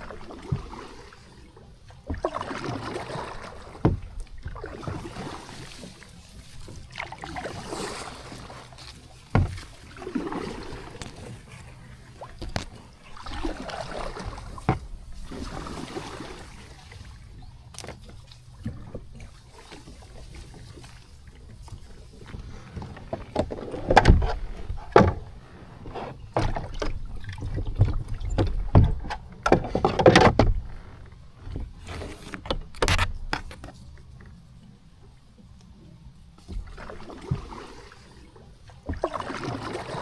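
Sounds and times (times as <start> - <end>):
paddle knocking hull: 0.0 - 1.0, 1.9 - 33.7
paddle splashing water: 0.0 - 40.0.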